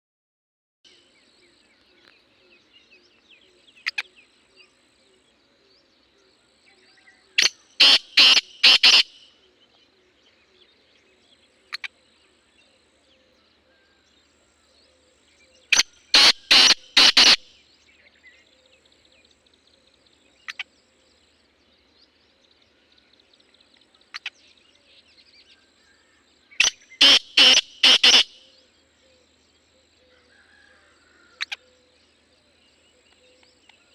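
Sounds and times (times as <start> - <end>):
faint small birds chirping: 0.9 - 33.9
bird harsh grating calls: 7.4 - 9.3, 15.7 - 17.5, 26.6 - 28.5.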